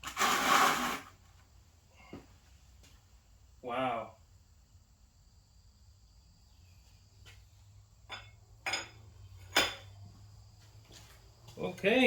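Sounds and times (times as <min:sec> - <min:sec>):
metallic clinks and knocks: 0:08.0 - 0:10.0.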